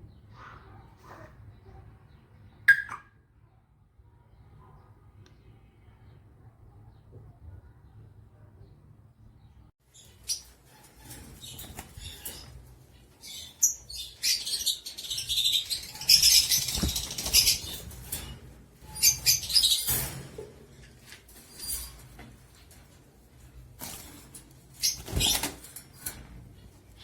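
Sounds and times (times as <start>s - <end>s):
bird wings flapping: 16.0s - 18.0s, 23.8s - 26.2s.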